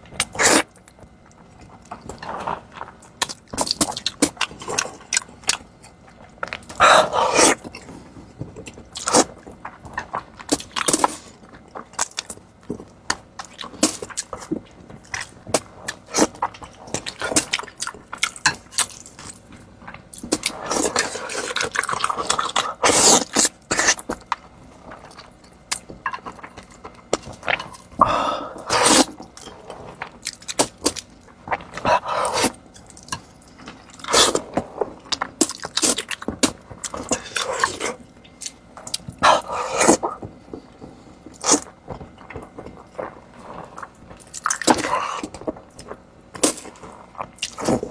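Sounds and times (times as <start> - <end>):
slurping: 20.4 - 24.0, 28.0 - 30.1, 31.5 - 32.6, 39.2 - 40.2.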